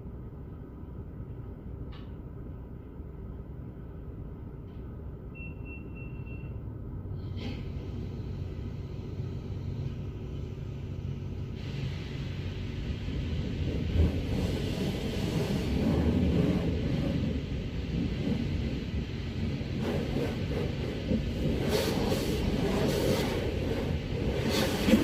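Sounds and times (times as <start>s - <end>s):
short faint high beep: 5.3s - 6.6s.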